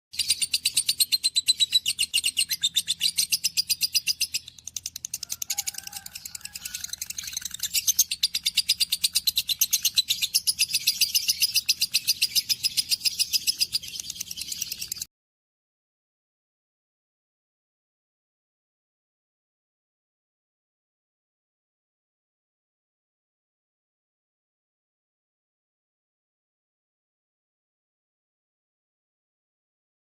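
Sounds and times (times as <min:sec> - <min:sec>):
baby bird chirping: 0:00.2 - 0:15.0.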